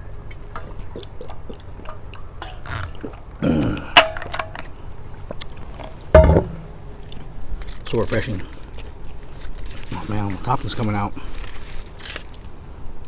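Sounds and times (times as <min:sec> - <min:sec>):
person drinking water: 0:00.3 - 0:06.1
low throaty sound: 0:00.6 - 0:07.9
vocal exhale: 0:02.7 - 0:04.0.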